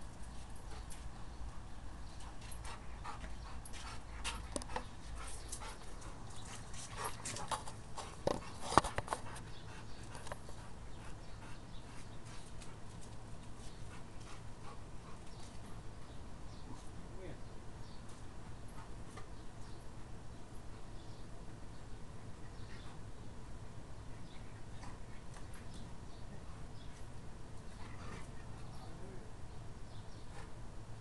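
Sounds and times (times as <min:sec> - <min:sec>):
dog panting: 0:00.5 - 0:15.9.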